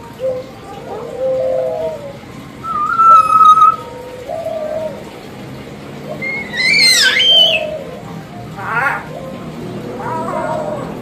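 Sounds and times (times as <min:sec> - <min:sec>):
myna whistling and calling: 0:02.6 - 0:03.9, 0:06.2 - 0:08.0.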